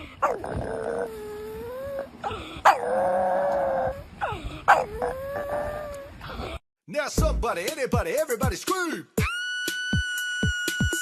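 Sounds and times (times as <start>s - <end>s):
dog howling: 2.7s - 6.2s.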